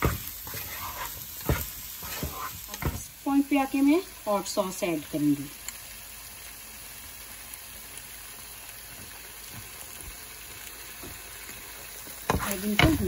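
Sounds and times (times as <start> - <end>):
vegetables sizzling in oil: 0.0 - 13.0
wooden spatula knocks: 12.3 - 13.0.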